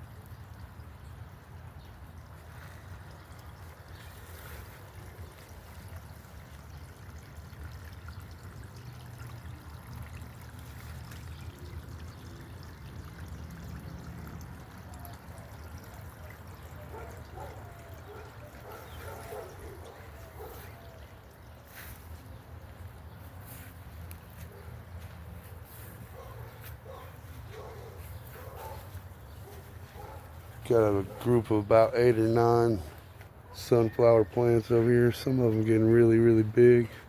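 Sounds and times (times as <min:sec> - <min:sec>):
water trickling into pond: 0:00.0 - 0:37.0.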